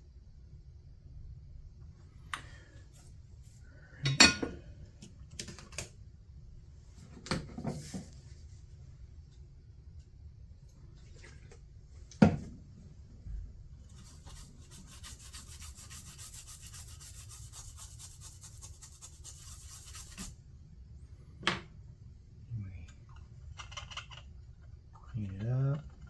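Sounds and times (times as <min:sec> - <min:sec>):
scratchy scrubbing strokes: 0:13.9 - 0:20.4.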